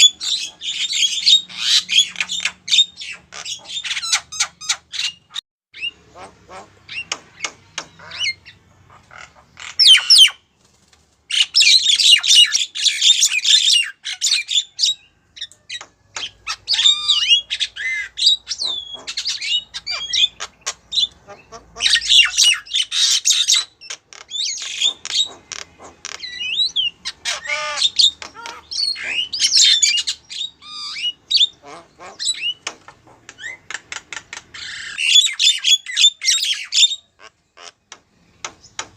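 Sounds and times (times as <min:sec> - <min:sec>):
myna calling: 0:16.2 - 0:37.8.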